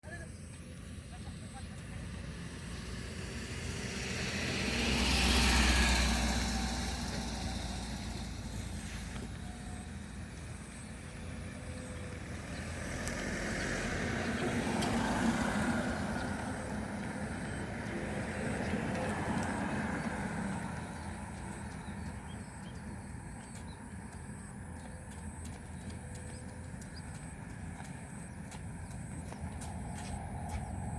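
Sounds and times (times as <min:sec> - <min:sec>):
vehicles passing by: 0:00.0 - 0:30.9.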